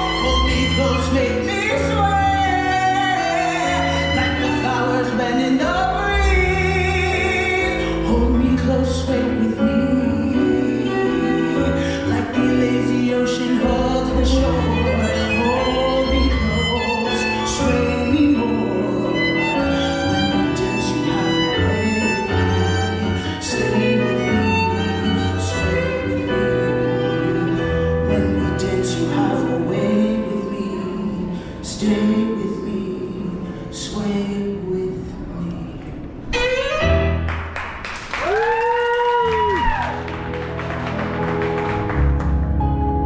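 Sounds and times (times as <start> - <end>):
violin melody: 0.0 - 31.2, 36.2 - 37.6
piano accompaniment: 0.0 - 43.0.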